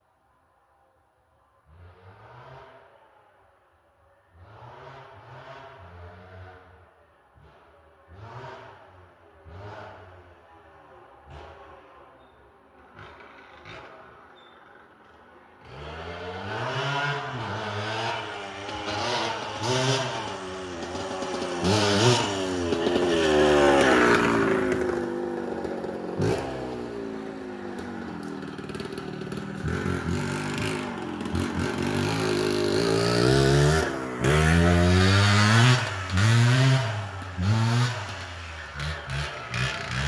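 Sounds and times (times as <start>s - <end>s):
motorcycle engine revving: 12.8s - 40.0s.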